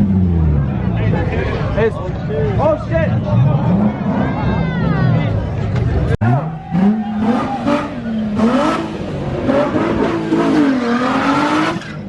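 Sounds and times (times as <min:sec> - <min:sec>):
car engine revving: 0:03.2 - 0:12.0.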